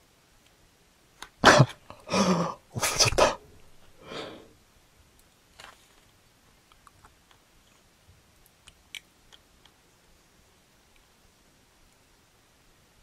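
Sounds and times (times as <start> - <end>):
small plastic parts clicking: 5.2 - 9.8.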